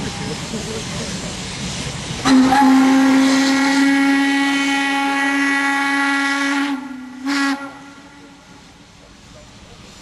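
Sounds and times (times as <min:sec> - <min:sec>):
steam locomotive whistle blast: 0:02.2 - 0:08.6.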